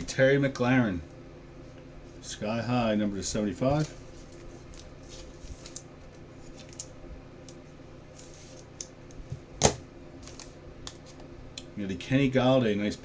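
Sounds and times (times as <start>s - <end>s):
faint steady hum: 0.0s - 13.0s
trading cards sliding and rustling: 3.6s - 6.9s, 8.1s - 8.7s.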